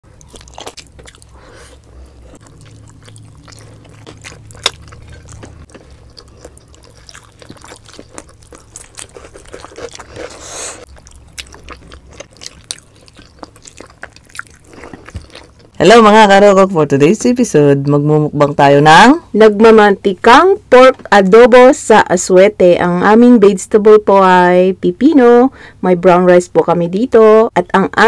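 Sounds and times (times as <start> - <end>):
wet chewing and smacking: 0.0 - 15.8.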